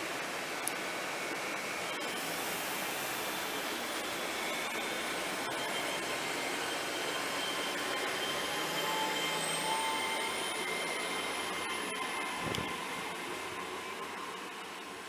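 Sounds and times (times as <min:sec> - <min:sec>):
high engine whine: 0:02.0 - 0:15.0.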